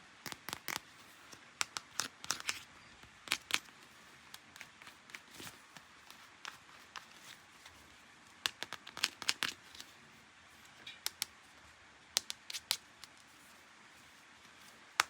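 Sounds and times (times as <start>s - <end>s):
plastic packaging clicks and crinkles: 0.2s - 7.8s, 8.4s - 9.9s.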